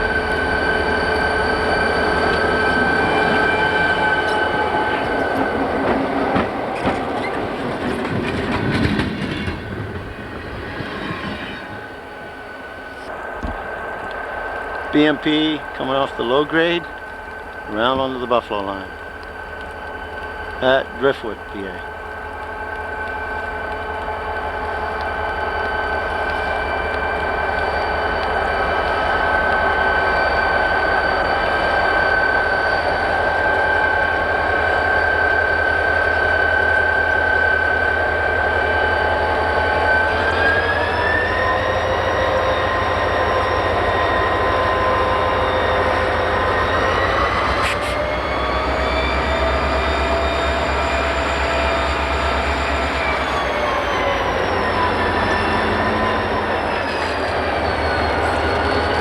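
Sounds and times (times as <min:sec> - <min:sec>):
high train whine: 0:00.0 - 0:59.0
train rumbling over rails: 0:00.0 - 0:59.0.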